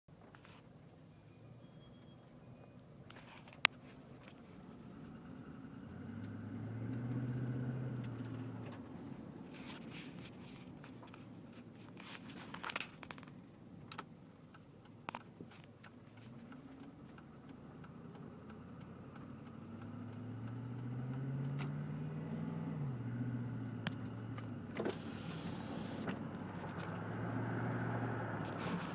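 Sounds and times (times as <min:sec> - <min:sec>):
car engine revving: 0:04.6 - 0:09.8, 0:16.7 - 0:28.9.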